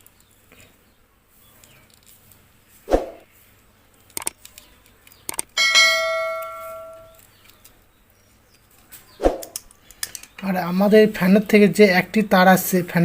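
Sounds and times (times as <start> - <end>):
sharp clicks: 4.0 - 5.6
metal struck and ringing: 5.6 - 7.2.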